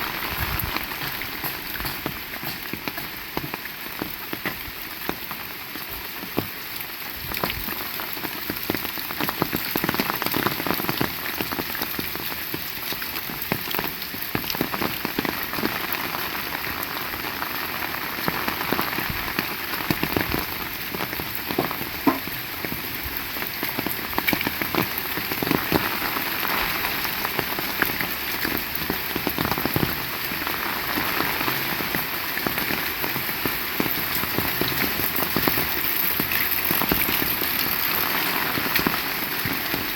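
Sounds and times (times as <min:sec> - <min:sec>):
heavy rain falling: 0:00.0 - 0:39.9
close raindrop hits: 0:18.2 - 0:39.9.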